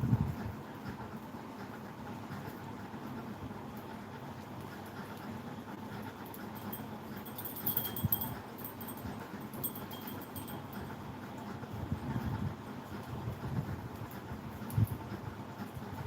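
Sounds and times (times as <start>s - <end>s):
low steady rumble: 0.0s - 1.2s, 5.1s - 16.0s.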